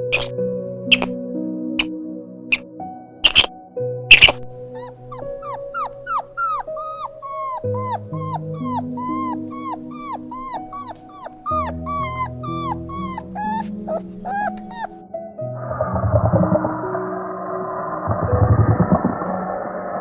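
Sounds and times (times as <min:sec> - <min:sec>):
animal yipping and whimpering: 0:00.0 - 0:00.3, 0:00.9 - 0:01.2, 0:03.3 - 0:03.5, 0:04.1 - 0:15.0
soft background music: 0:00.0 - 0:19.9
sharp click: 0:00.9 - 0:01.2, 0:03.2 - 0:03.5, 0:04.1 - 0:04.4.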